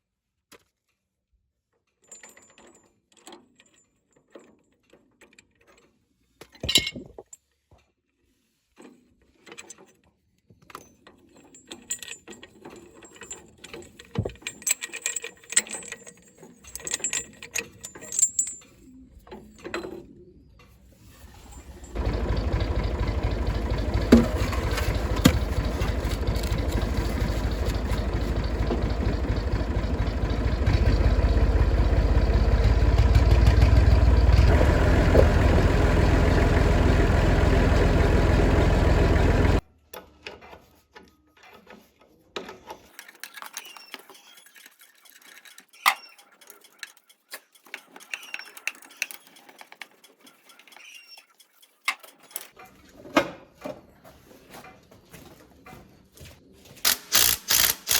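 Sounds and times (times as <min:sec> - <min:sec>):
tractor engine running: 0:21.2 - 0:39.6
birds chirping: 0:21.7 - 0:39.6.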